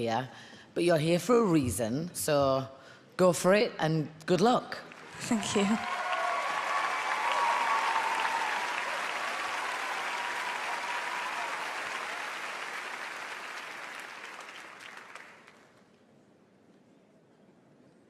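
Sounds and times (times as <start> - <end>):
audience applauding: 4.9 - 15.8.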